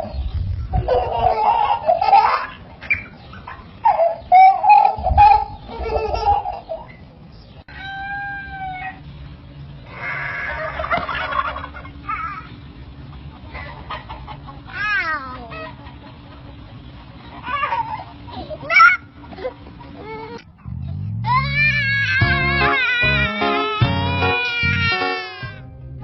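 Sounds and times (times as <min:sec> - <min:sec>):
poultry calling: 0:02.5 - 0:07.0, 0:09.8 - 0:25.2.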